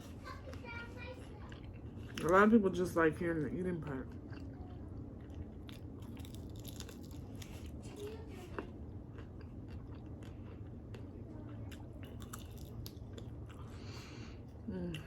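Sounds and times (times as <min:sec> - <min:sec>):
chewing crispy chicken wings: 0:00.0 - 0:02.6, 0:04.0 - 0:15.0
steady low hum: 0:00.0 - 0:15.0.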